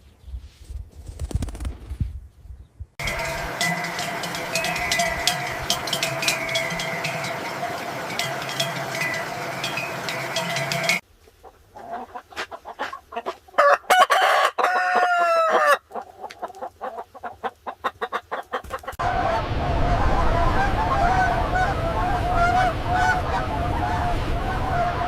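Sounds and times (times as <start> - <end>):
rooster crowing: 3.0 - 11.0, 13.6 - 15.8, 19.0 - 25.0
chickens clucking: 3.0 - 19.4
farmyard fowl chatter: 3.0 - 19.4, 20.4 - 25.0.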